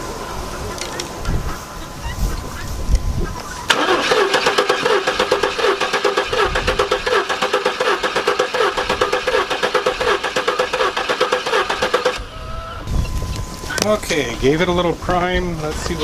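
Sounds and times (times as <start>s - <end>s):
starter cranking engine: 3.7s - 12.3s.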